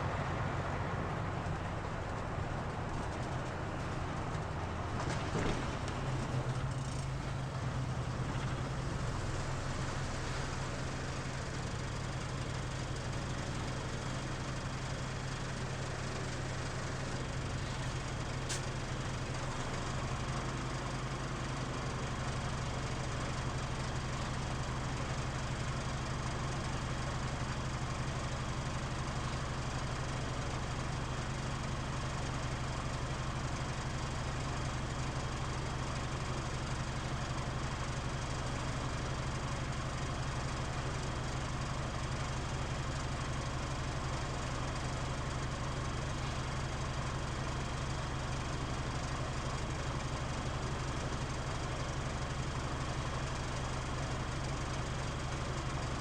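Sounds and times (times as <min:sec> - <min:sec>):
bus diesel engine idling: 0:00.0 - 0:56.0.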